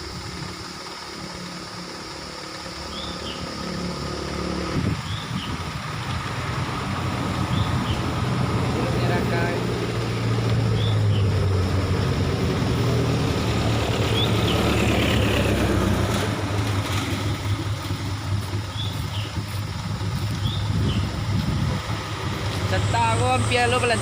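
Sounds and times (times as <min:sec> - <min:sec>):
vehicle engine climbing: 0:00.0 - 0:24.0.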